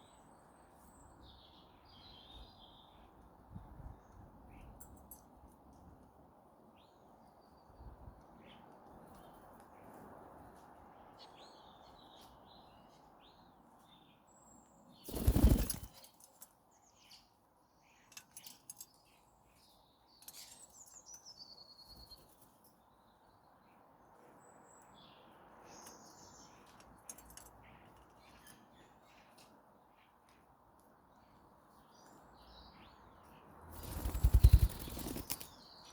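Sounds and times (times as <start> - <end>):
wings flapping: 15.1 - 16.0, 33.7 - 35.6
birds chirping: 31.2 - 35.9.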